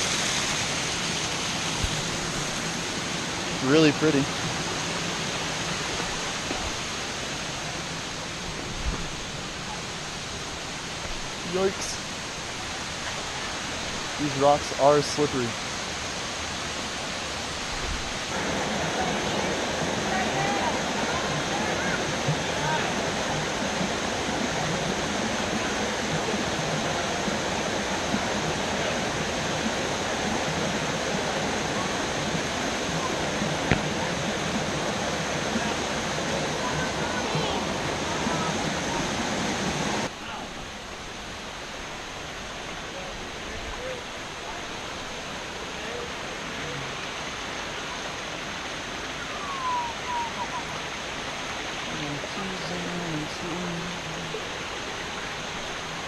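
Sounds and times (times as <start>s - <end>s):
waterfall pouring: 0.0s - 56.0s
short falling whistle: 49.3s - 50.4s.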